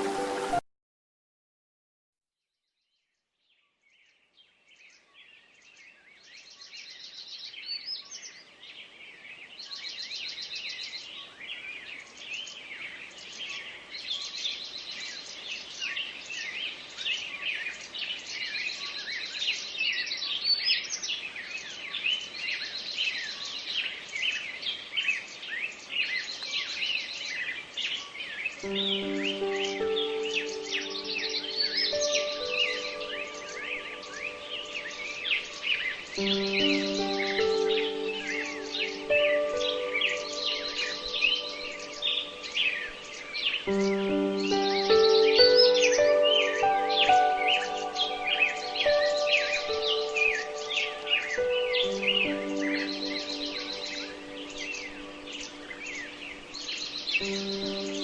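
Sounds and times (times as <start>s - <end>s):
low musical tones: 0.0s - 0.6s, 28.6s - 58.0s
wild birds singing: 3.4s - 58.0s.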